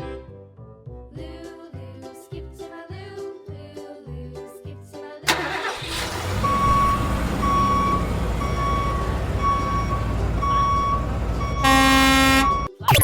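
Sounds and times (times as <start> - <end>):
truck engine rumble: 5.3 - 12.7
reversing alarm beeping: 6.4 - 13.0.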